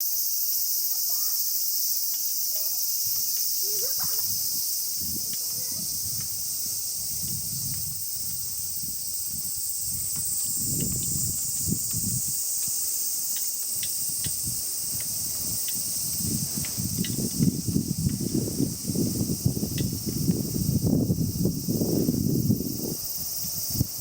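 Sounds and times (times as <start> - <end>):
high-pitched insect chorus: 0.0 - 24.0
faint ticks: 2.0 - 2.3, 5.3 - 6.4, 10.1 - 15.9
wind gusts on microphone: 3.0 - 13.1, 13.7 - 24.0.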